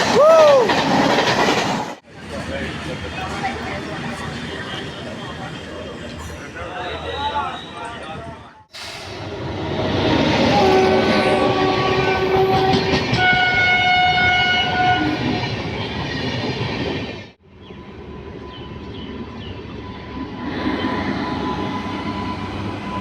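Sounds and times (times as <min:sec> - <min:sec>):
train wheels rumbling and clattering: 0:00.0 - 0:23.0
train horn: 0:10.0 - 0:15.4.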